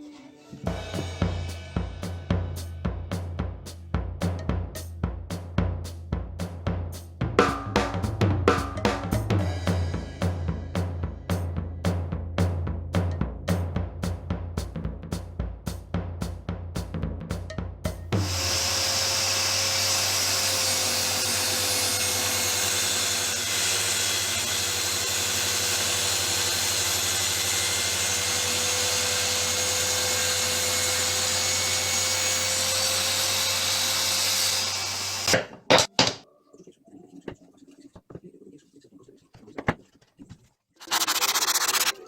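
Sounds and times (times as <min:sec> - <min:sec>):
electric power tool running: 0:18.2 - 0:35.3.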